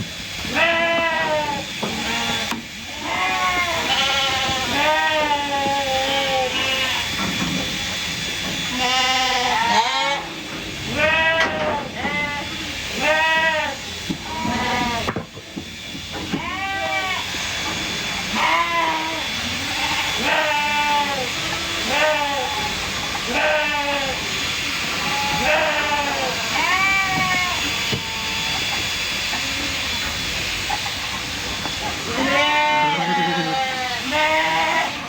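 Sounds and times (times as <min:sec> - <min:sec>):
sheep bleating: 0:00.5 - 0:07.2, 0:08.7 - 0:10.3, 0:10.9 - 0:15.1, 0:16.3 - 0:17.3, 0:18.3 - 0:24.3, 0:24.9 - 0:28.7, 0:32.0 - 0:35.0.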